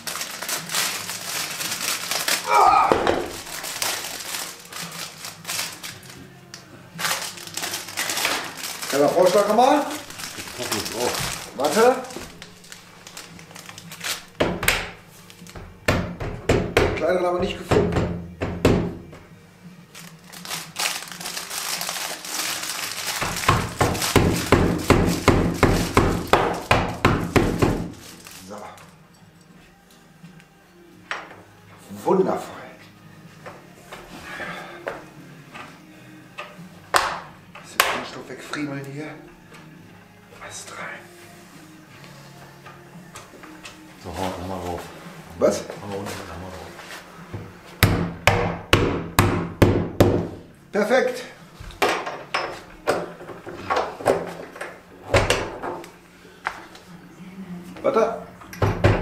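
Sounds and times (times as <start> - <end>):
rustling and crinkling packaging: 0.0 - 6.4, 7.0 - 14.4, 15.2 - 15.6, 19.9 - 29.0.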